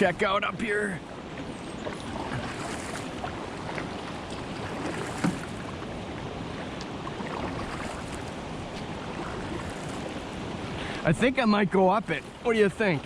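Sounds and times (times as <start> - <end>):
faint light splashes: 1.8 - 5.8.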